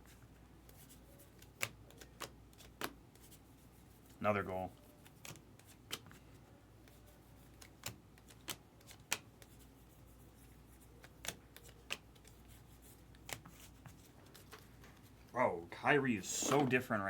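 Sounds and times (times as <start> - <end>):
trading cards clicking: 6.9 - 9.6, 11.0 - 12.4.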